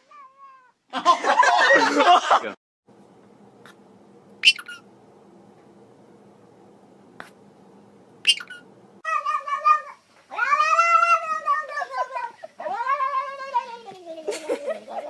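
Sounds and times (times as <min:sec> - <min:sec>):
cat yowling: 0:08.3 - 0:13.9.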